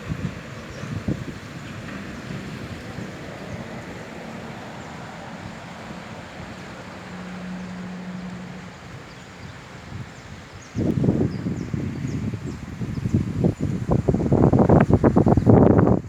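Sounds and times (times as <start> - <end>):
steady rushing outdoor noise: 0.0 - 16.0.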